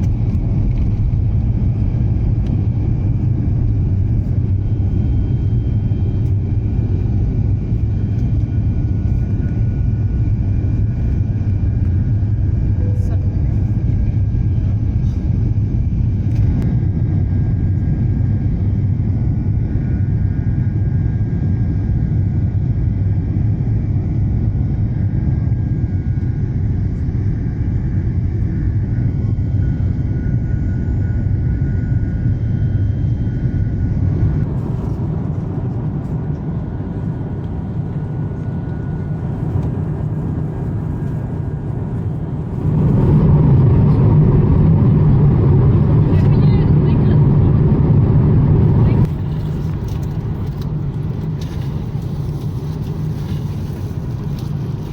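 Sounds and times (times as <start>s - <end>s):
aircraft cabin engine rumble: 0.0s - 54.9s
faint steady whine: 0.0s - 54.9s.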